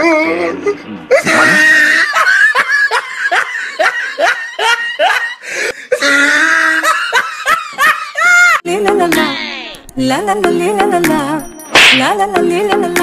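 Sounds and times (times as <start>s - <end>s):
person laughing loudly: 1.1s - 8.6s.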